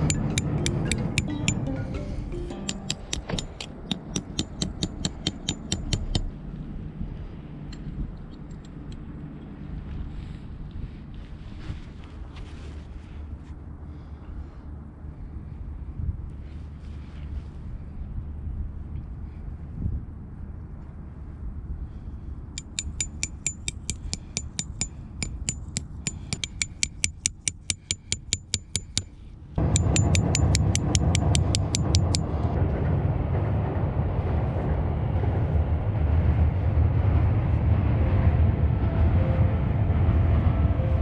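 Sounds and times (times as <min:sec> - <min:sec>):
wind noise on microphone: 0:03.0 - 0:22.8, 0:29.3 - 0:41.0.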